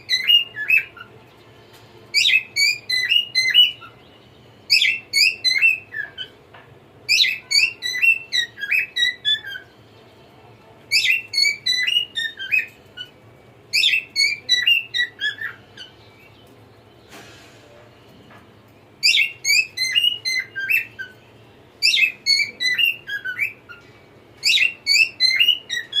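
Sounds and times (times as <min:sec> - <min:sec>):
cockatiel whistling: 0:00.0 - 0:01.1, 0:02.1 - 0:04.0, 0:04.7 - 0:06.4, 0:07.1 - 0:09.7, 0:10.9 - 0:15.9, 0:19.0 - 0:21.2, 0:21.8 - 0:26.0.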